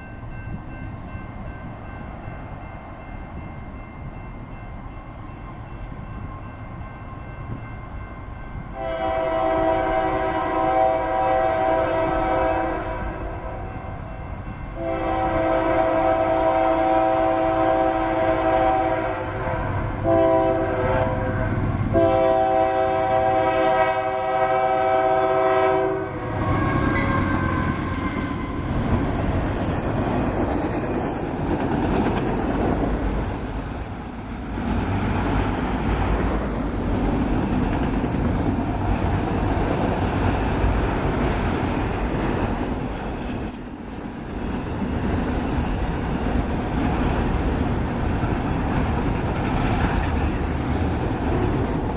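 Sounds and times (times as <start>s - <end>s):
rail cars rolling clickety-clack: 0.0s - 51.9s
locomotive air horn blasts: 8.8s - 13.6s, 14.8s - 28.8s.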